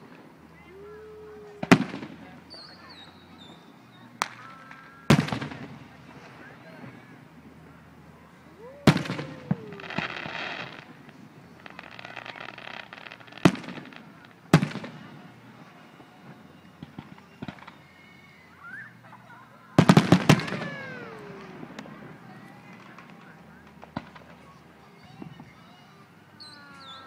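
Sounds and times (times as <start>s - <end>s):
crackling firework sparks: 0.0s - 3.4s, 4.0s - 18.2s, 19.8s - 27.0s
fireworks booming: 0.6s - 7.8s, 8.5s - 17.8s, 19.8s - 24.5s.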